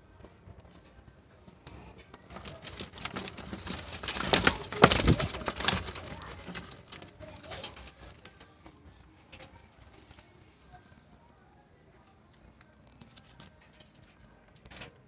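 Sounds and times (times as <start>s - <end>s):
bird clicking and scratching on cage bars: 1.6s - 10.3s, 12.4s - 15.0s.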